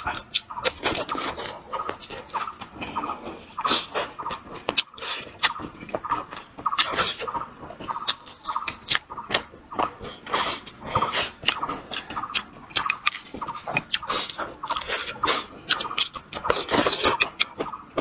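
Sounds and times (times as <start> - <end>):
person chewing food: 0.0 - 18.0
wet mouth smacks and clicks: 8.0 - 17.6.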